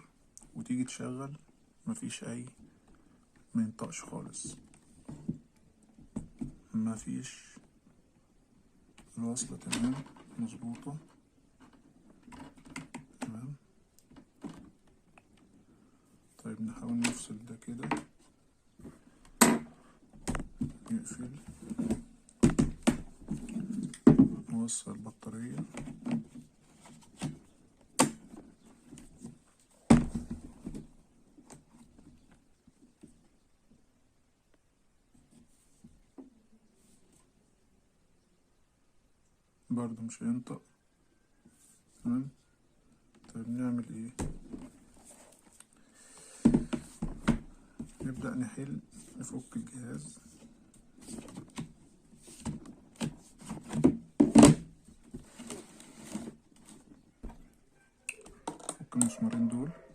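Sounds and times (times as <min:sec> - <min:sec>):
laptop knocks and clatters: 0:19.4 - 0:20.8, 0:21.8 - 0:24.4, 0:52.4 - 0:55.2
sharp plastic knocks: 0:21.8 - 0:24.3.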